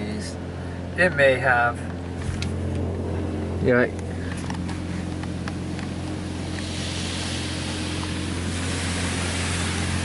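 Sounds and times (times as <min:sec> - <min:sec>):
steady low hum: 0:00.0 - 0:10.0
water spray hitting a car: 0:05.5 - 0:10.0.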